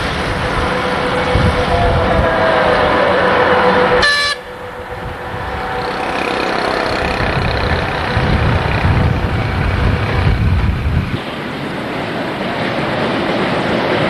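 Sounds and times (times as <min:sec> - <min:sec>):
vehicle horn: 0:00.0 - 0:08.4
vehicle engine rumbling: 0:00.0 - 0:11.2.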